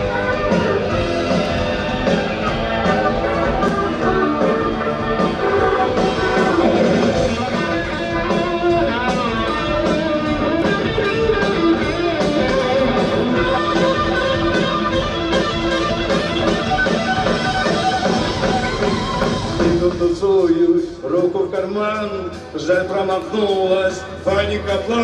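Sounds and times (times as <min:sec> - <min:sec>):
electric guitar melody: 0:00.0 - 0:20.0
steady drum beat: 0:00.0 - 0:23.0
bass guitar: 0:00.0 - 0:25.0.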